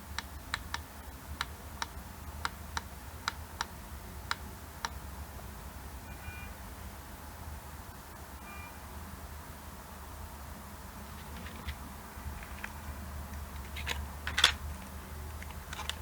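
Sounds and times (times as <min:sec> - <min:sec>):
faint short electronic beep: 0:06.1 - 0:06.6, 0:08.4 - 0:08.8.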